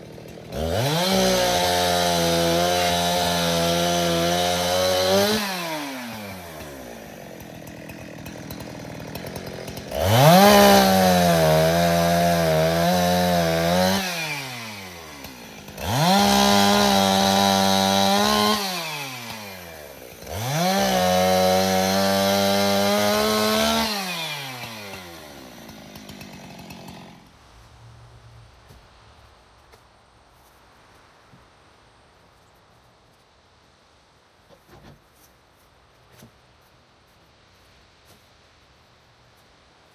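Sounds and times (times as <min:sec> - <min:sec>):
chainsaw cutting brush: 0:00.0 - 0:27.8.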